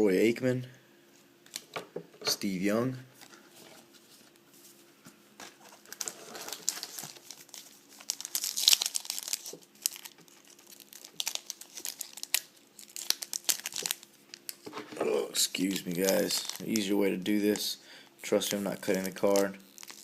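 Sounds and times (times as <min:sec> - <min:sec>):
foil wrapper crinkling: 0:05.4 - 0:14.8, 0:15.5 - 0:17.7, 0:18.3 - 0:20.0.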